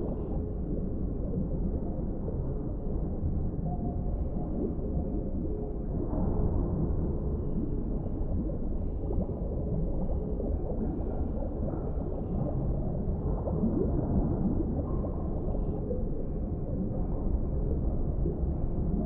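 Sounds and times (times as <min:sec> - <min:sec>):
gurgling bubbles: 0:00.0 - 0:19.0
muffled underwater rumble: 0:00.0 - 0:19.0.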